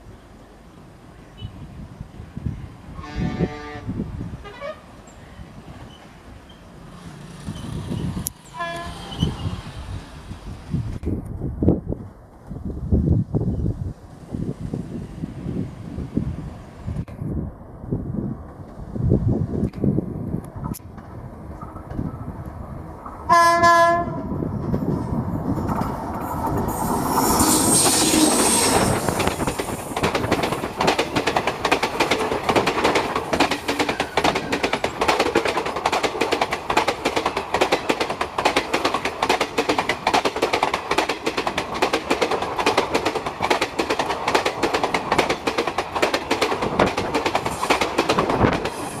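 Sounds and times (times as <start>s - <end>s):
electric locomotive rushing past: 1.6s - 49.0s
train wheels clickety-clack: 20.5s - 23.2s, 23.9s - 49.0s.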